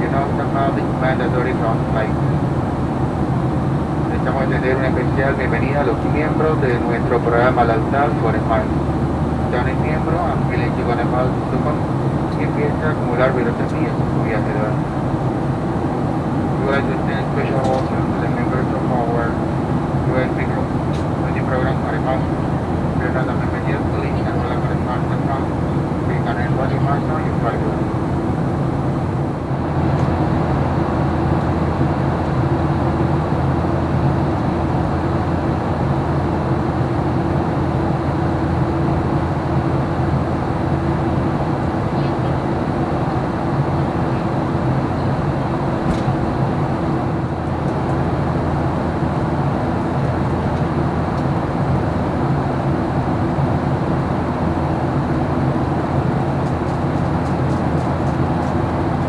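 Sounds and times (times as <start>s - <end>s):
low hum tones: 0.0s - 30.0s
airliner cabin drone: 0.0s - 59.0s.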